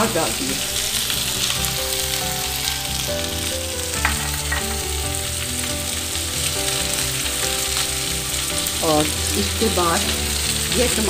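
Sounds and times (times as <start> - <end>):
vegetables sizzling in hot oil: 0.0 - 11.0
wooden spoon stirring: 3.9 - 5.7.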